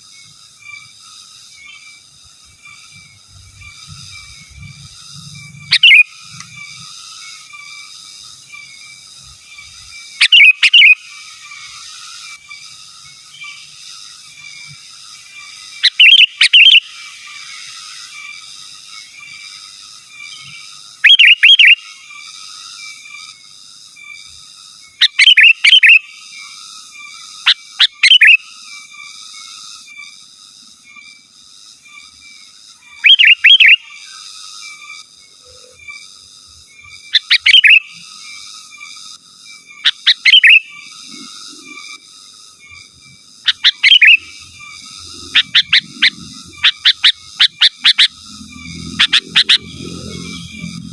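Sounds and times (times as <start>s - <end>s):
bulbul calling: 5.5s - 6.7s, 10.2s - 11.1s, 15.8s - 17.1s, 21.0s - 21.8s, 25.0s - 26.1s, 27.5s - 28.4s, 33.0s - 33.9s, 37.1s - 38.1s, 39.8s - 41.9s, 43.3s - 50.8s.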